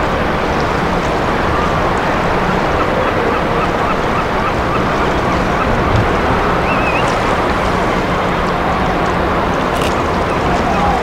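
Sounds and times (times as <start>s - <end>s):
wind: 0.0s - 11.0s
wavering whistle: 6.6s - 7.1s.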